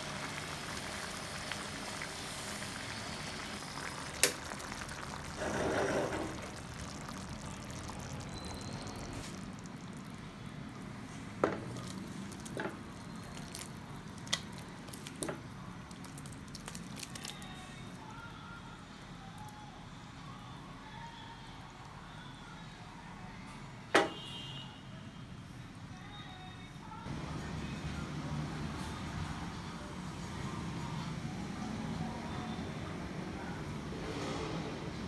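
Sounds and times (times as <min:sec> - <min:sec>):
food bubbling in a pan: 0:00.0 - 0:17.6.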